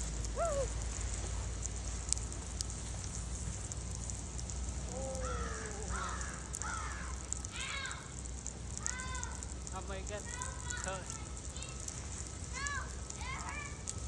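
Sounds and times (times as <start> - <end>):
child yelping: 6.7 - 8.1, 8.8 - 9.4.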